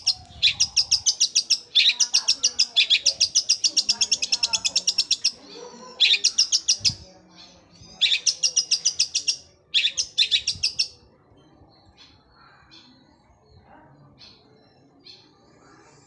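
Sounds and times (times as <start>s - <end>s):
bird singing rapid trills: 0.0s - 5.4s, 6.0s - 7.0s, 7.8s - 11.0s
faint bird chirps: 0.0s - 16.0s.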